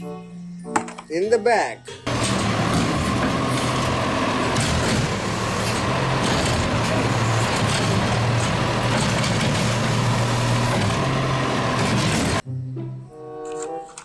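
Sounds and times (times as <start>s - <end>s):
heavy truck engine running: 2.1s - 12.4s.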